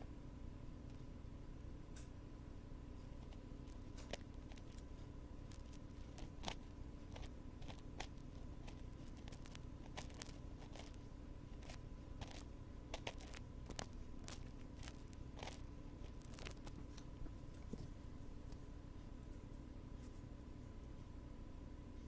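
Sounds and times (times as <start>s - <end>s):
steady low hum: 0.0s - 22.0s
ear pick scratching and clicking: 3.2s - 4.9s, 5.5s - 17.1s.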